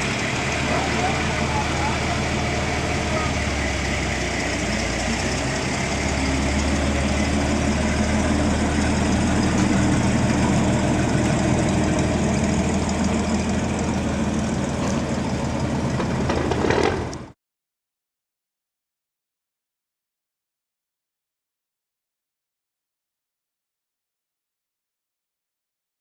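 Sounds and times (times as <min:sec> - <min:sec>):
truck engine idling: 0:00.0 - 0:17.4.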